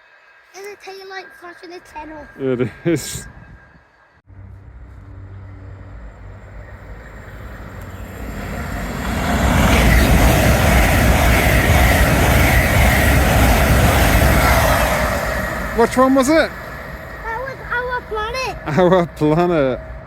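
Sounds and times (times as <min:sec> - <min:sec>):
faint whine: 0:00.0 - 0:11.0
train passing at speed: 0:00.0 - 0:20.0.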